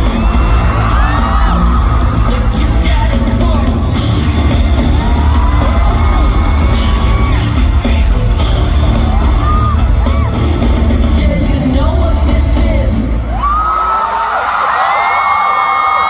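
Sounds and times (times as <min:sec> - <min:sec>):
audience yelling: 0:00.0 - 0:11.4, 0:12.9 - 0:16.0
person singing: 0:00.0 - 0:13.4
live pop music: 0:00.0 - 0:16.0.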